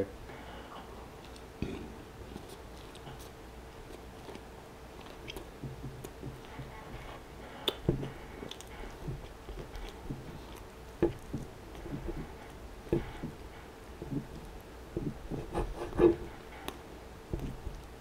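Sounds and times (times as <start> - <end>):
chewing food: 0.8 - 18.0
fork scraping wooden board: 15.0 - 16.7.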